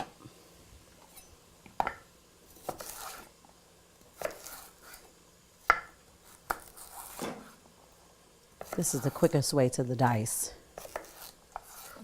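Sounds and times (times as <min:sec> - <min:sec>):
knife chopping on cutting board: 0:02.6 - 0:03.2, 0:04.2 - 0:05.0, 0:05.6 - 0:07.5, 0:08.6 - 0:09.1, 0:10.8 - 0:12.0.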